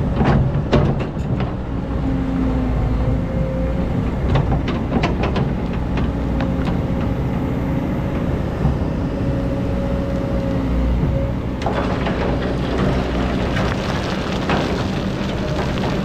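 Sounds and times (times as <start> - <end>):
excavator diesel engine running: 0.0 - 16.0
sand and stones rattling: 11.6 - 16.0.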